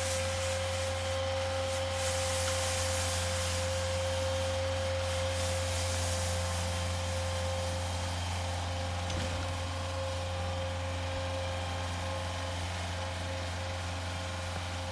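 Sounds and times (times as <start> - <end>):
hiss of snow being thrown: 0.0 - 8.4
snowblower engine whining: 0.0 - 14.9.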